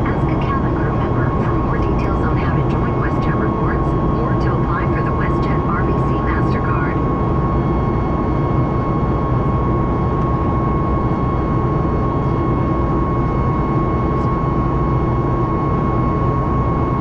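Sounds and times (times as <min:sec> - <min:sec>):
jet engine cabin rumble: 0:00.0 - 0:17.0
steady jet engine whine: 0:00.0 - 0:17.0.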